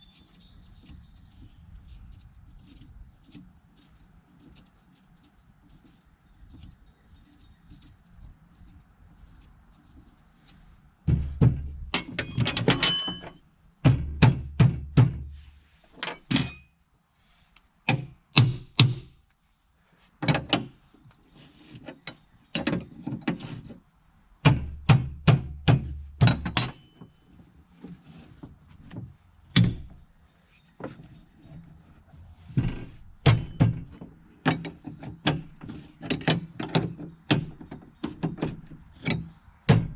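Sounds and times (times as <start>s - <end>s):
crickets chirring: 0.0s - 39.9s
dull thuds: 11.0s - 16.7s, 17.9s - 19.2s, 24.4s - 27.1s, 28.3s - 35.8s, 36.4s - 39.9s
hand tools clicking on metal: 11.9s - 13.4s, 16.0s - 16.8s.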